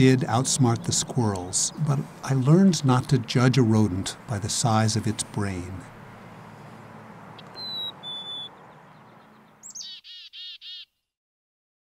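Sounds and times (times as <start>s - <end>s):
songbirds calling: 0.0s - 11.1s.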